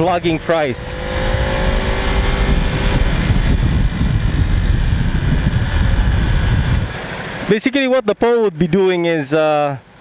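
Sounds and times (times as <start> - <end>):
wind rumble on microphone: 0.0 - 7.5
motor vehicle running: 0.0 - 10.0.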